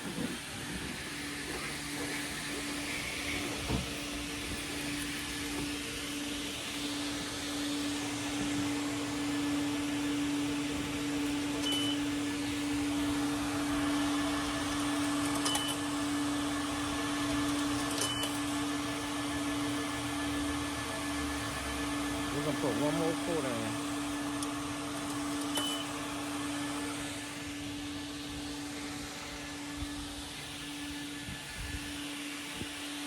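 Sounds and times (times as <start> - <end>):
vacuum hose sucking air: 0.0 - 11.4.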